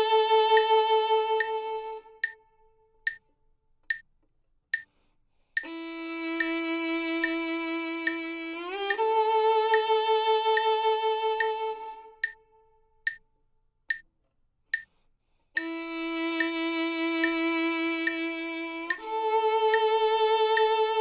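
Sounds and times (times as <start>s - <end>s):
metronome clicking: 0.0s - 4.1s, 5.6s - 13.3s, 13.9s - 14.1s, 14.7s - 14.9s, 15.6s - 21.0s
violin bowed note sliding up: 15.6s - 21.0s.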